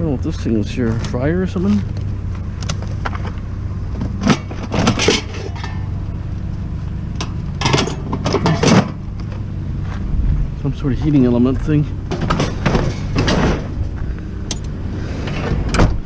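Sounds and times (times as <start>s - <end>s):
low engine hum: 0.0s - 16.0s
metal appliance clinking: 4.2s - 5.9s, 7.6s - 9.0s.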